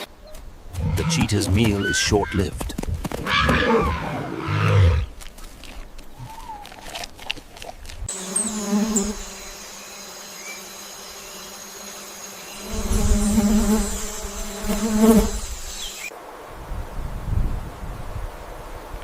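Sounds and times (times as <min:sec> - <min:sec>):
flying insect buzzing: 0:08.1 - 0:16.5.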